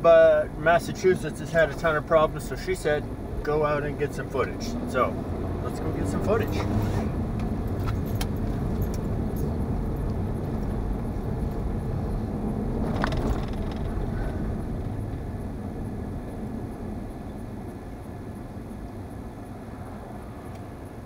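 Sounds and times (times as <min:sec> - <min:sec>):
car engine and road noise: 0:00.0 - 0:21.0.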